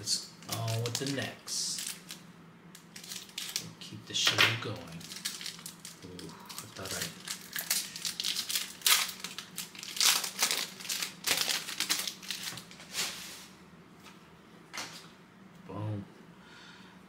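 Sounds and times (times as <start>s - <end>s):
plastic wrapper crinkling and tearing: 0.4s - 2.2s, 2.8s - 3.9s, 4.8s - 13.0s.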